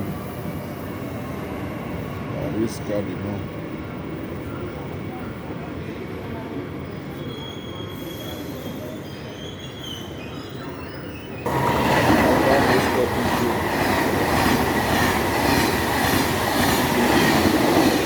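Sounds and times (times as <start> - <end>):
loud rail noise: 0.0 - 18.0
wheels squealing on rails: 6.7 - 18.0
train rumble: 11.5 - 18.0.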